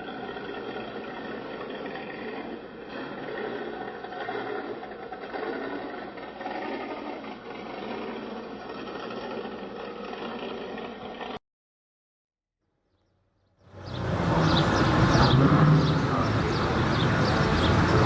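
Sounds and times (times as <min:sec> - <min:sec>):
engine clattering: 0:13.7 - 0:18.0.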